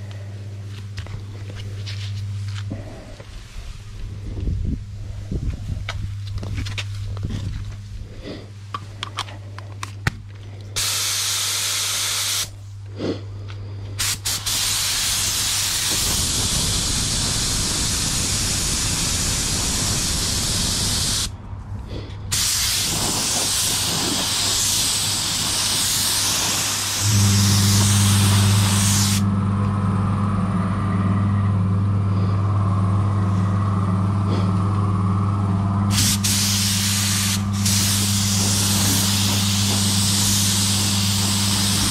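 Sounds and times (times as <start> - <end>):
steady low hum: 0.0 - 41.9
paint spray gun hissing: 10.8 - 12.5, 14.0 - 21.3, 22.3 - 29.3, 35.9 - 41.9.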